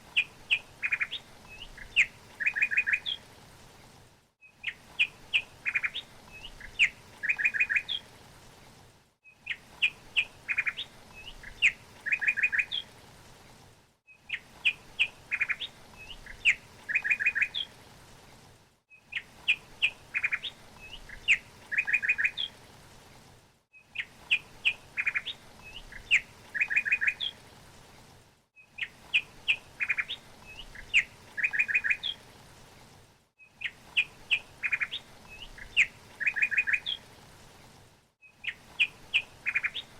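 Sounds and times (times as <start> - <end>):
small songbird chirping and trilling: 0.2 - 3.2, 4.4 - 8.0, 9.3 - 12.9, 14.1 - 17.7, 19.0 - 22.5, 23.8 - 27.4, 28.6 - 32.2, 33.5 - 37.0, 38.2 - 39.9.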